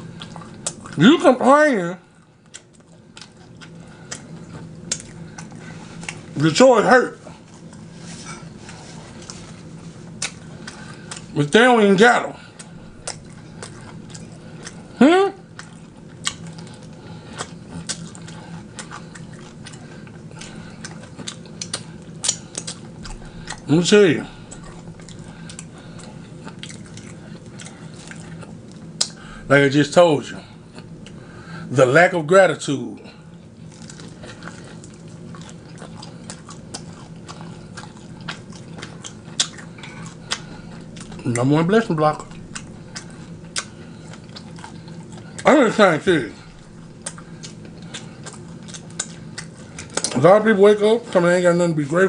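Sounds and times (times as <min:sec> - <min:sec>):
crisp chewing crunches: 0:00.0 - 0:01.3, 0:02.0 - 0:29.6, 0:33.1 - 0:52.0
steady low hum: 0:00.0 - 0:52.0
mouth clicks and smacks: 0:12.6 - 0:14.9, 0:17.4 - 0:23.7, 0:24.5 - 0:29.2.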